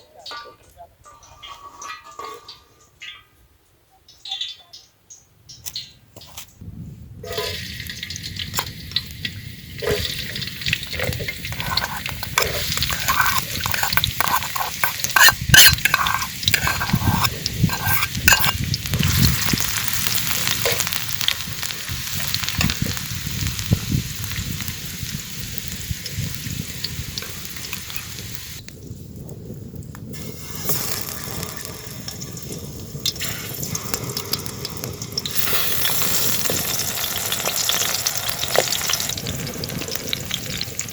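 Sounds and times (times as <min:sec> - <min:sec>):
utensil scraping a pan: 0:07.2 - 0:07.6, 0:09.8 - 0:23.0
food sizzling in hot oil: 0:07.2 - 0:28.7, 0:30.1 - 0:40.9.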